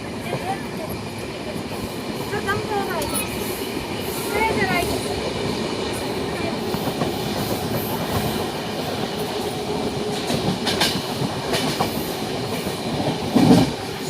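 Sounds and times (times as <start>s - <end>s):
train wheels rumbling on track: 0.0s - 14.0s
clickety-clack knocks: 10.1s - 13.8s.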